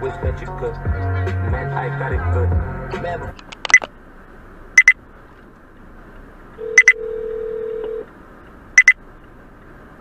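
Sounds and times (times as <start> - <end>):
sharp double beep: 4.8 - 5.0, 6.6 - 7.1, 8.8 - 9.0
telephone ringing tone: 6.6 - 8.0.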